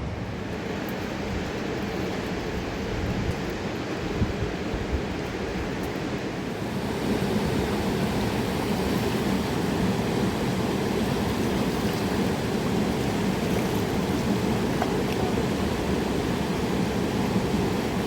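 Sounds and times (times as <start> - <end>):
river rushing: 6.2 - 18.0.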